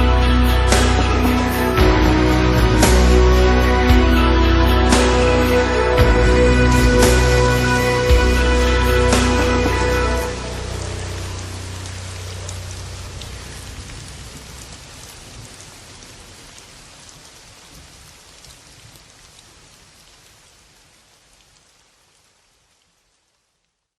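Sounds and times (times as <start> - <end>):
low music notes: 0.0 - 14.3
rain falling: 0.0 - 24.0
raindrop ticks: 10.8 - 23.9.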